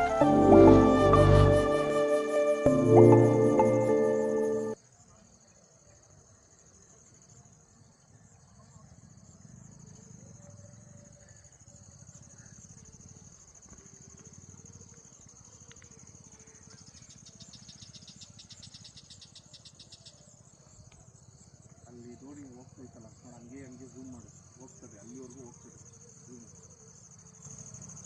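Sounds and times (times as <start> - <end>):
rapid pulsed insect trill: 9.0 - 28.0
insect high-pitched buzz: 23.2 - 28.0.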